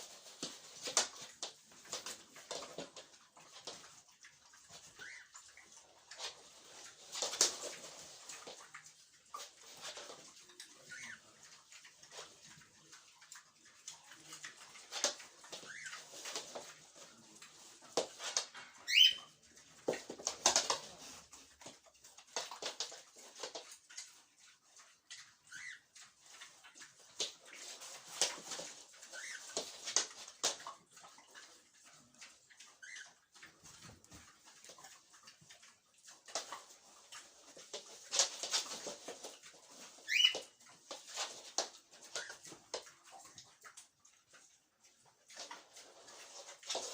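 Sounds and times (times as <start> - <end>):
pigs grunting and snuffling: 0.0 - 46.9
pig squeal: 18.9 - 19.4, 40.1 - 40.4
pig squealing: 40.1 - 40.4.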